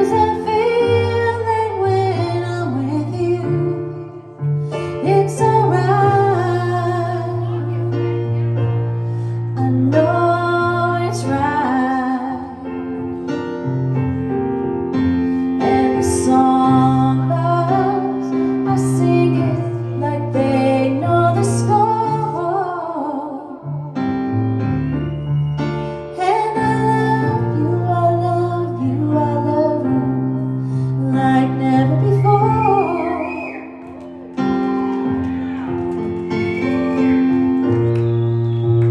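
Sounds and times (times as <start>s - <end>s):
woman singing: 0.0s - 8.4s, 9.5s - 12.9s, 15.6s - 23.9s, 26.1s - 33.9s
piano chords: 0.0s - 38.9s.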